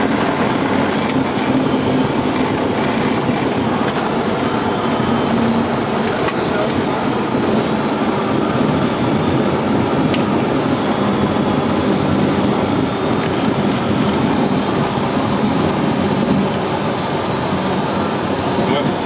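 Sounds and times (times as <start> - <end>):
airplane engine drone in cockpit: 0.0 - 19.0.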